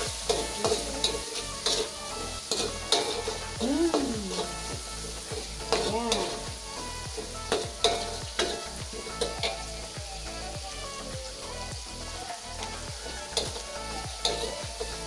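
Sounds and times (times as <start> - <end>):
spatula scraping and knocking pan: 0.0 - 3.6, 4.3 - 9.8, 12.6 - 15.0
aromatics sizzling in oil: 0.0 - 15.0.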